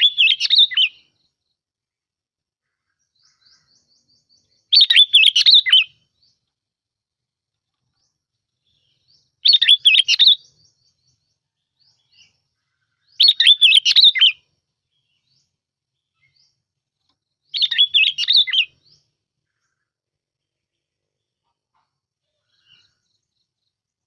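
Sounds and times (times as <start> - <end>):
bulbul song: 0.0 - 1.4, 3.2 - 6.5, 8.1 - 12.4, 13.0 - 16.6, 17.4 - 19.8.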